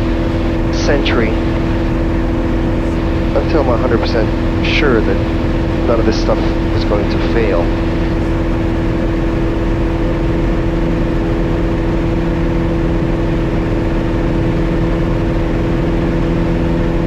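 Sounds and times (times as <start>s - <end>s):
airplane engine and propeller drone: 0.0s - 17.0s.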